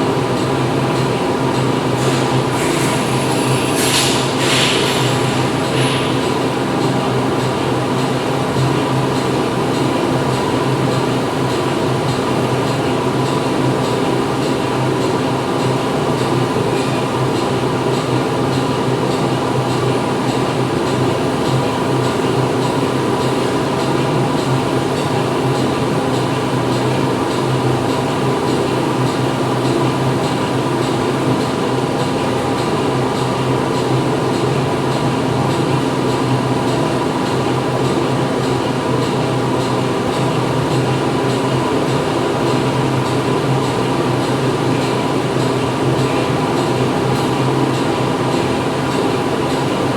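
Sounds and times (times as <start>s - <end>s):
factory machinery din: 1.7s - 18.8s.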